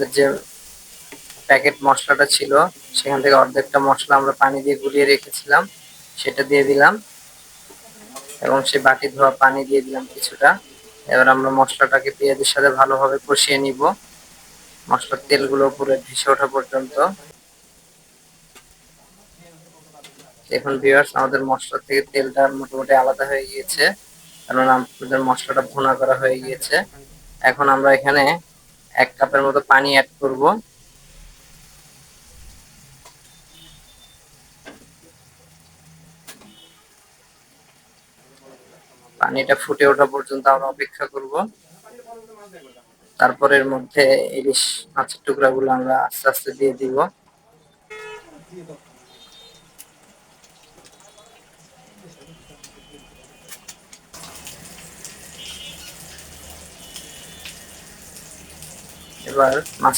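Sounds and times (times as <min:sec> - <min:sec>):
masala sizzling in oil: 0:00.0 - 0:59.9
gravy bubbling in a pan: 0:47.3 - 0:59.9.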